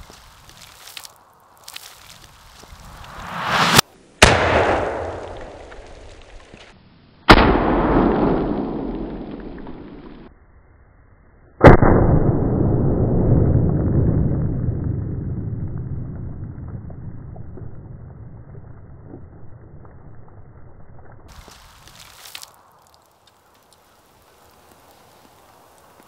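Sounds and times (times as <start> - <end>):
shotgun blasts with echo: 3.1 - 6.0, 7.3 - 10.2.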